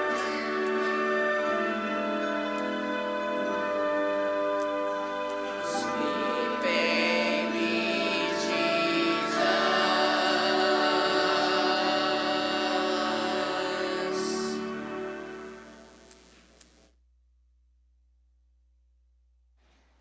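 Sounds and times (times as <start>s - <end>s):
choir singing with accompaniment: 0.0s - 15.8s.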